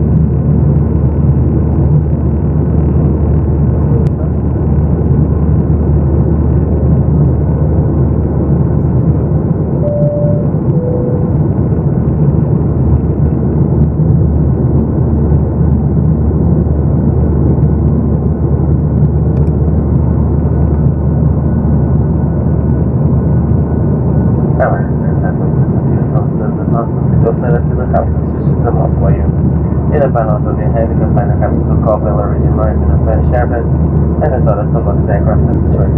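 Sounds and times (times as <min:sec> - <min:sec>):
aircraft cabin engine noise: 0:00.0 - 0:35.9
two-note cabin chime: 0:09.8 - 0:11.7.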